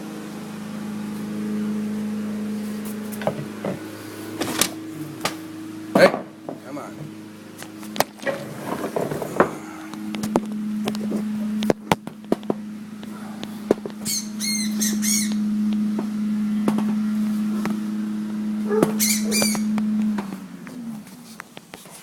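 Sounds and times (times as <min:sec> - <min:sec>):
loud steady low hum: 0:00.0 - 0:22.0
bird squawking chirps: 0:14.0 - 0:15.5, 0:19.0 - 0:19.7.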